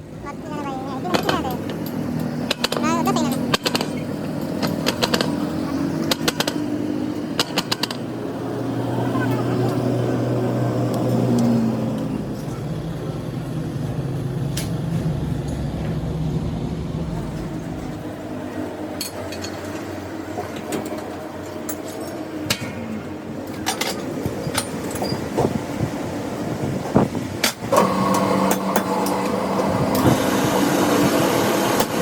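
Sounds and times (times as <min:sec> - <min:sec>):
machine motor humming: 0:08.6 - 0:18.3.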